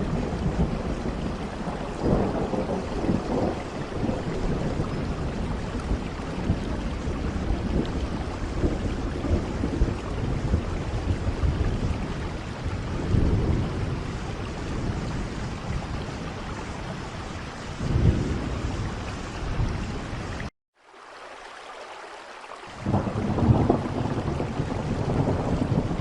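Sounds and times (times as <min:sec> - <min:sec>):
low rolling thunder: 0:00.0 - 0:20.2, 0:22.8 - 0:26.0
heavy rain: 0:00.0 - 0:26.0.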